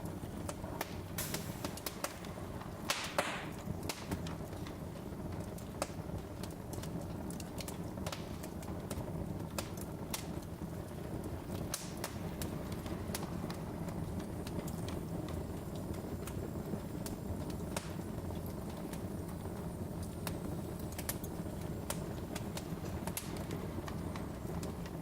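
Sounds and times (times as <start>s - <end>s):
low rumble of flame: 0.0s - 25.0s
wood fire crackling: 0.0s - 25.0s
brief hiss: 1.2s - 1.9s.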